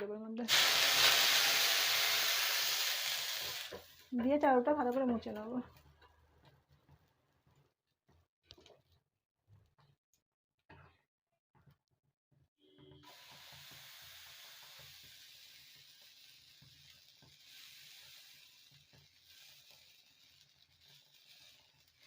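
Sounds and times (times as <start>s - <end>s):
batter sizzling on a hot griddle: 0.5s - 4.1s, 13.0s - 22.0s.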